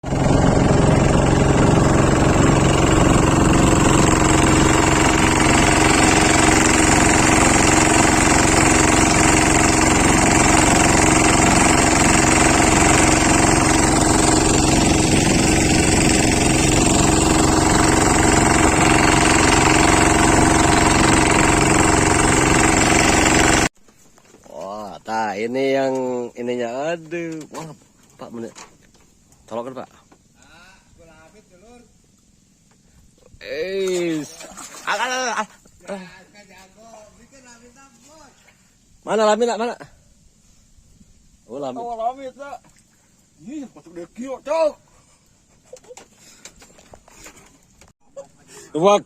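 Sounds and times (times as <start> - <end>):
engine running loudly: 0.0 - 23.7.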